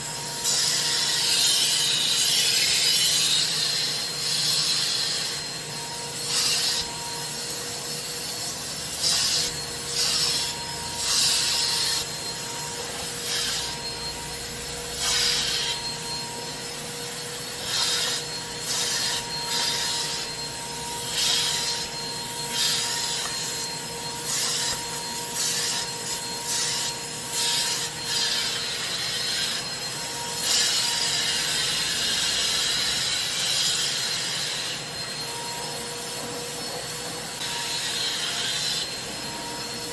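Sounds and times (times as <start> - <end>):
extraction machine motor whine: 5.6 - 32.2.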